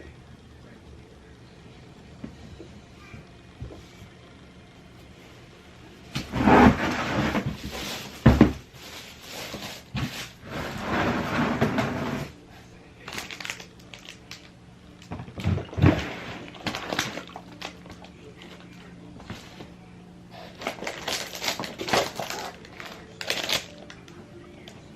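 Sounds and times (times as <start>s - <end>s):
handling rustling and scraping: 6.1s - 12.4s.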